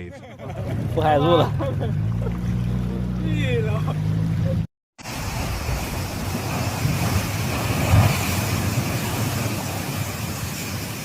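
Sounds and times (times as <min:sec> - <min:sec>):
storm wind and rain: 0:05.0 - 0:11.0.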